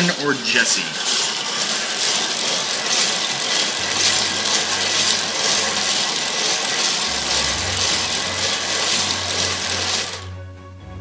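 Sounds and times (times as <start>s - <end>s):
bingo cage balls rattling: 1.6s - 10.3s.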